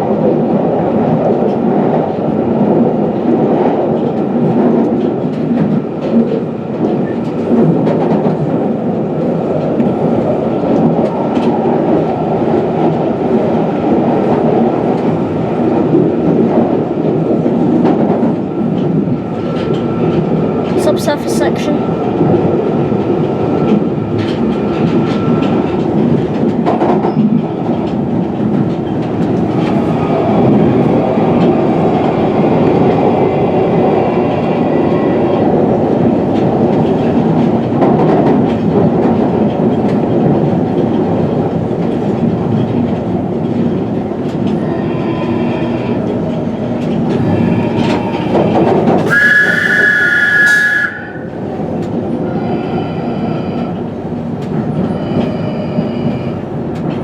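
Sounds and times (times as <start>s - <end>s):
train wheels rumbling: 0.0s - 52.6s.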